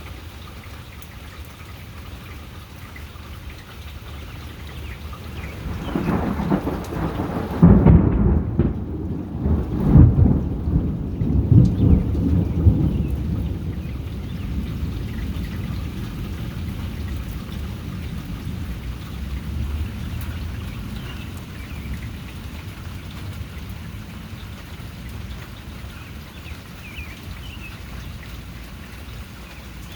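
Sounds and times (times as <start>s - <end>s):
steady rain falling: 0.0s - 29.9s
thunder rumbling: 5.0s - 25.6s.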